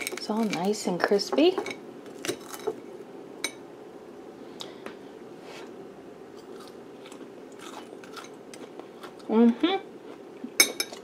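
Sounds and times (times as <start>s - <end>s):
steady low hum: 0.0s - 11.0s
crunchy chewing: 6.3s - 9.3s.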